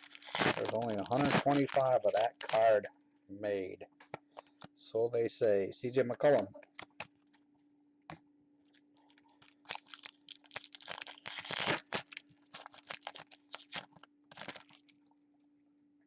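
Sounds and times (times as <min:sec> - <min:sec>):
foil wrapper tearing and crinkling: 0:00.0 - 0:02.8, 0:09.0 - 0:15.0
faint steady hum: 0:00.0 - 0:16.0.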